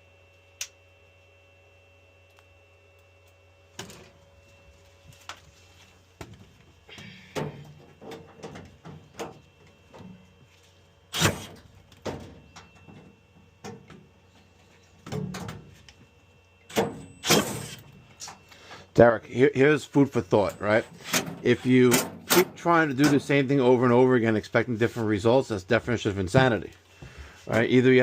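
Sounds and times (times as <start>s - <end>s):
steady low hum: 0.0s - 28.0s
clunks and clicks of tools: 20.4s - 23.2s.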